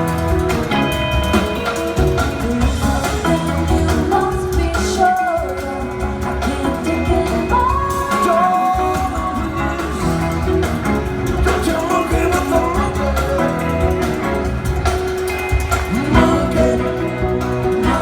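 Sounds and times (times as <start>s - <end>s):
live rock band playing: 0.0s - 18.0s
man singing long notes: 15.9s - 18.0s.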